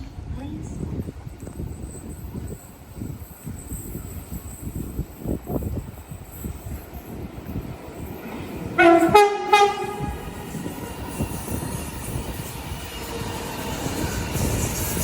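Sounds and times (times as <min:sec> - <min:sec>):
train rumbling past: 0:00.2 - 0:15.0
train two-note horn: 0:08.8 - 0:10.6.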